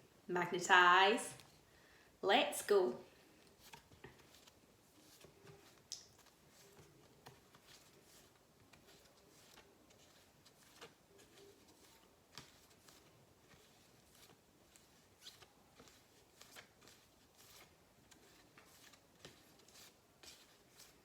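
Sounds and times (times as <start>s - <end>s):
flashcards flipped by hand: 3.4s - 21.0s.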